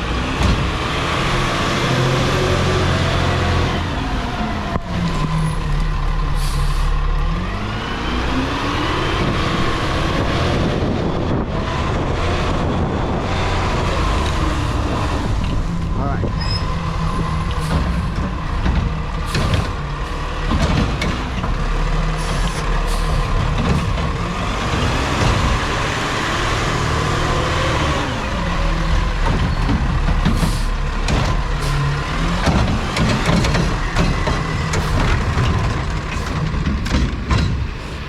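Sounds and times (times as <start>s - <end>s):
garbage truck diesel engine: 0.0s - 38.0s
knocks and clanks: 13.8s - 38.0s.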